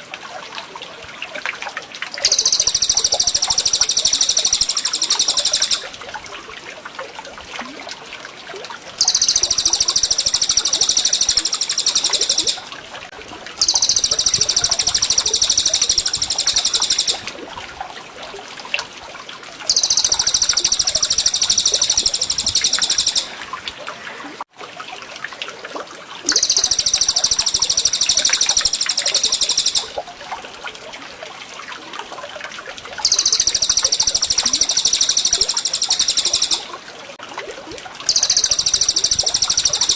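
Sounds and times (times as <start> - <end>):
high-pitched songbird bursts: 2.2 - 5.9, 9.0 - 12.7, 13.6 - 17.3, 19.7 - 23.3, 26.3 - 30.0, 33.0 - 36.7, 38.1 - 39.9
soft bird chirps: 26.3 - 30.0.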